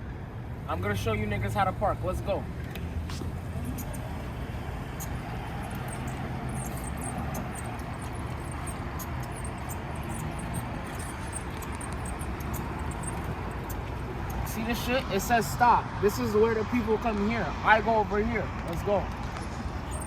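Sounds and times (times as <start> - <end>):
car engine rumble: 0.0 - 15.1, 19.3 - 20.0
road noise: 0.0 - 20.0.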